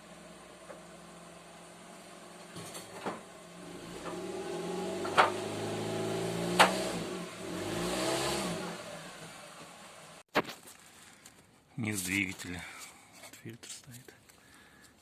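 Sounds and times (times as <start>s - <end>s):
car engine running: 0.0s - 10.2s.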